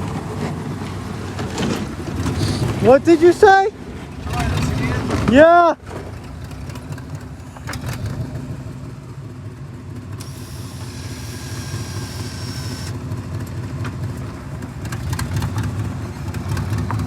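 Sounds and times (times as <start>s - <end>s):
car engine rumbling under load: 0.0s - 17.0s
faint high whine: 10.2s - 13.0s.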